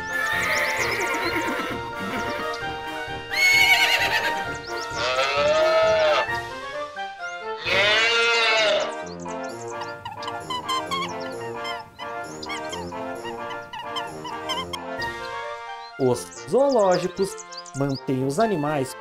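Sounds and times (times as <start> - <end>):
background music with steady beat: 0.0 - 7.9, 8.6 - 19.0
animal cries: 3.3 - 6.3, 7.6 - 9.1, 9.7 - 15.3.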